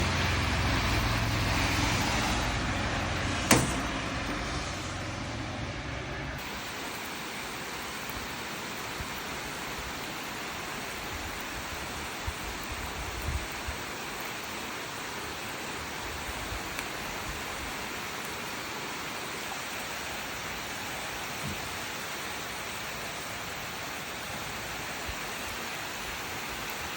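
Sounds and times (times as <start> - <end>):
steady rain falling: 0.0 - 5.4, 6.2 - 26.9
soft thumps: 3.5 - 4.3.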